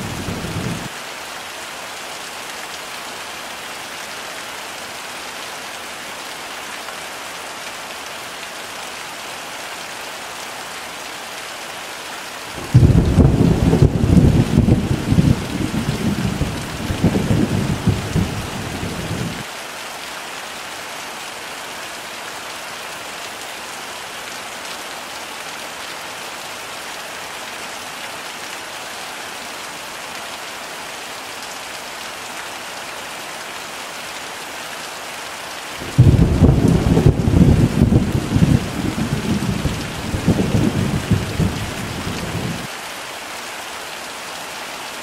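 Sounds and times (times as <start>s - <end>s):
heavy rain: 0.0s - 45.0s
thunder rumbling: 12.6s - 19.4s, 35.8s - 42.7s.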